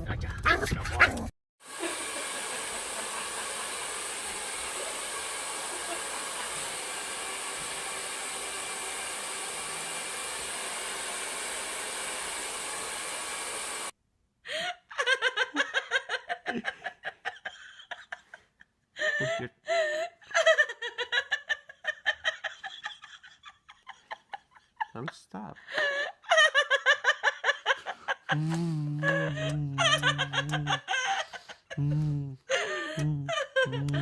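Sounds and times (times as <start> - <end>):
person laughing hard: 14.5 - 34.0.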